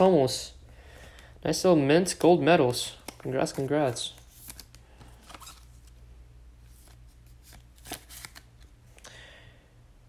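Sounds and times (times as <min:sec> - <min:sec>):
trading cards sliding: 0:03.0 - 0:06.0, 0:06.7 - 0:08.7.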